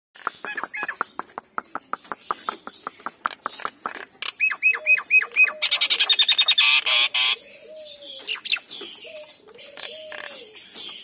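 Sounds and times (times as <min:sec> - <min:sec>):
myna clicking and whistling: 0:00.2 - 0:07.0
bird harsh chattering: 0:00.2 - 0:10.5.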